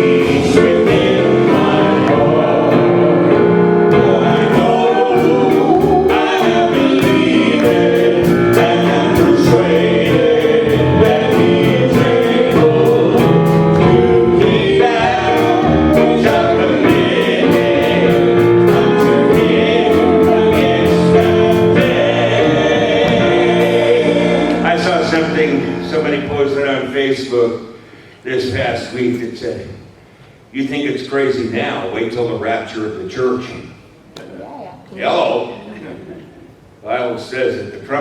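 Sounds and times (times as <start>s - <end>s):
gospel group singing with instruments: 0.0s - 26.8s.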